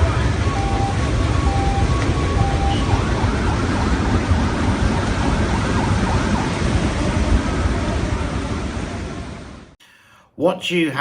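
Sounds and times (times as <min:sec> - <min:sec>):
heavy rain: 0:00.0 - 0:09.8.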